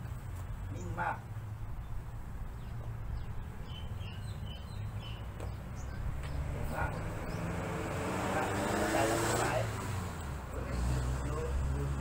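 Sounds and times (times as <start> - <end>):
high bird chirps: 2.6 - 7.6.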